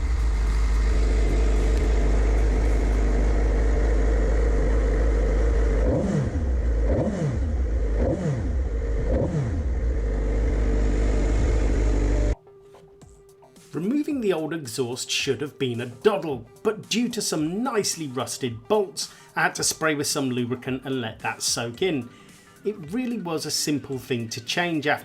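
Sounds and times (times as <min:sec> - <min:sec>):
motorcycle engine idling and revving: 0:00.0 - 0:12.4.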